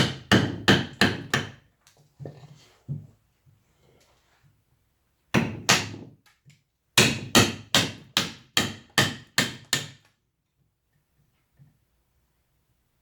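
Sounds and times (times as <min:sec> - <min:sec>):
mallet striking chisel into wood: 0:00.0 - 0:01.6, 0:05.4 - 0:06.1, 0:07.0 - 0:10.0.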